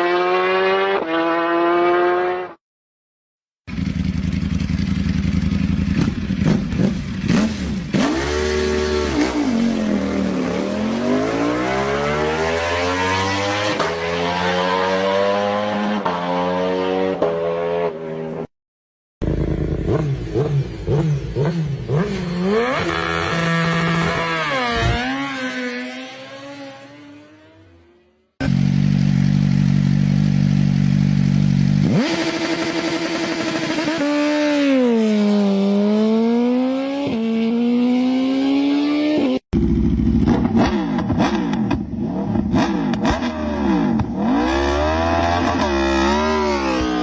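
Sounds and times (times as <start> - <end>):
motorcycle engines revving: 0.0 - 2.6, 3.7 - 18.5, 19.2 - 47.0.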